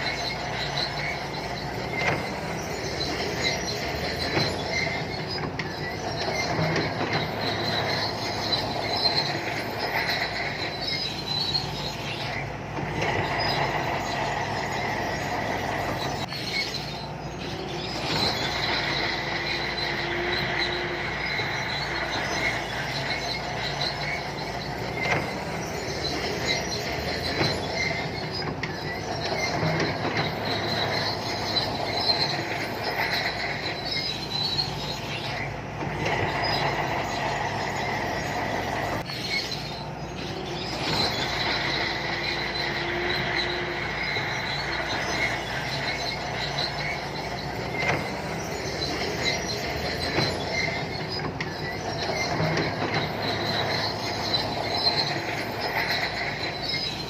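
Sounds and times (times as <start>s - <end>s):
bulldozer diesel engine running: 0.0s - 57.0s
steel tracks squealing: 0.0s - 57.0s.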